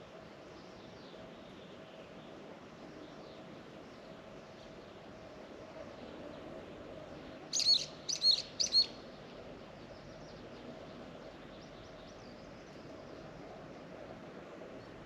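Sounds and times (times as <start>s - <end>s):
faint steady hum: 0.0s - 15.0s
bird chirping: 7.5s - 9.0s.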